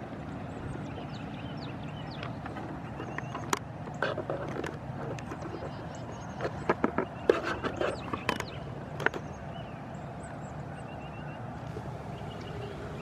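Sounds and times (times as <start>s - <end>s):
steady low hum: 11.5s - 13.0s
high bird chirps: 11.7s - 13.0s.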